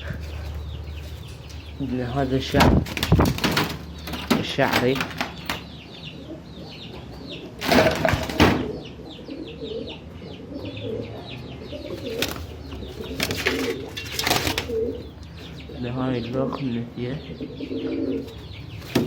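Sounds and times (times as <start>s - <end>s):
caged birds chirping: 0.0s - 19.0s
wings flapping: 2.8s - 5.6s, 12.0s - 15.0s.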